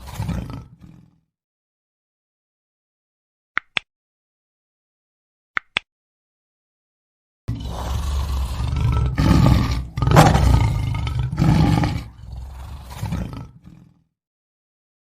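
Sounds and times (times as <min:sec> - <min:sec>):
lion roaring: 0:00.0 - 0:01.2, 0:07.5 - 0:14.0.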